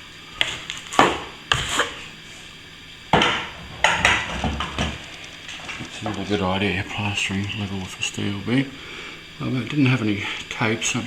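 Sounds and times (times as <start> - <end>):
hand tools scraping plaster: 0.4 - 2.1.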